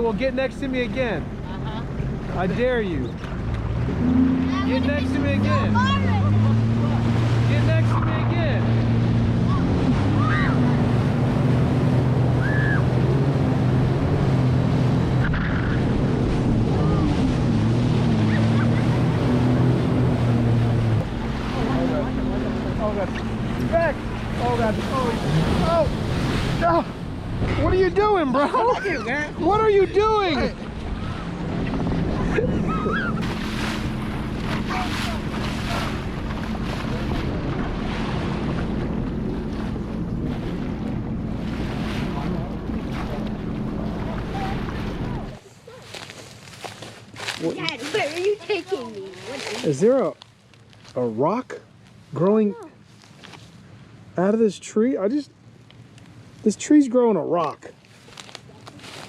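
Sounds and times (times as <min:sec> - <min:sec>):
water rushing: 0:00.0 - 0:45.5
jet ski engine running: 0:00.0 - 0:45.8
wind: 0:00.0 - 0:59.0
wind buffeting microphone: 0:28.9 - 0:45.4.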